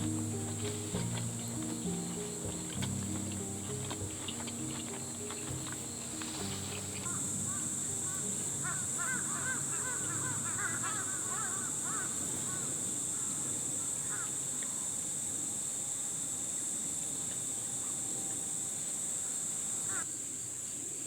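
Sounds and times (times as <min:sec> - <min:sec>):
flock of birds calling: 0:00.0 - 0:14.4
insect chirring: 0:00.0 - 0:20.0.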